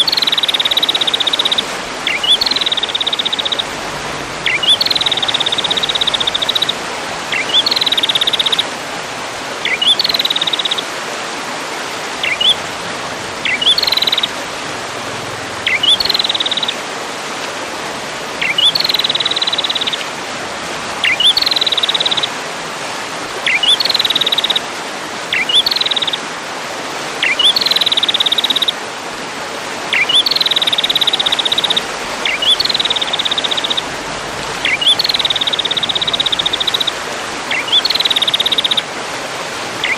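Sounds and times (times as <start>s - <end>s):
songbird call with buzzy trill: 0.0s - 3.8s, 4.4s - 8.7s, 9.6s - 10.8s, 12.2s - 12.6s, 13.4s - 14.4s, 15.6s - 16.8s, 18.4s - 20.0s, 21.0s - 22.3s, 23.4s - 24.7s, 25.3s - 26.2s, 27.2s - 28.8s, 29.9s - 34.0s, 34.6s - 38.9s.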